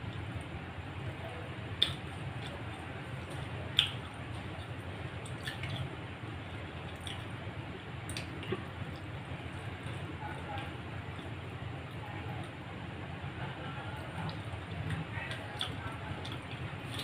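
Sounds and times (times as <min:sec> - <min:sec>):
wet squishing chewing: 0:01.8 - 0:07.4, 0:14.0 - 0:17.0.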